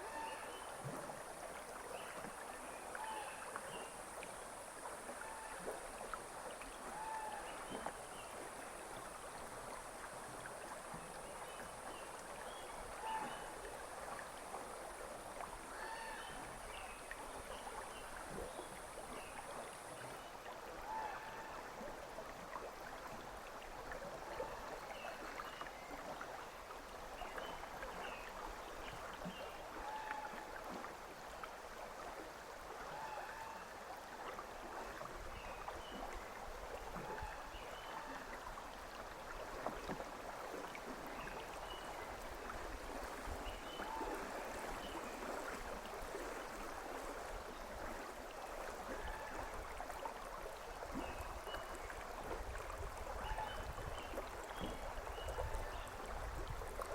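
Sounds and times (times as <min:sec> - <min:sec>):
river water gurgling: 0:00.0 - 0:56.9.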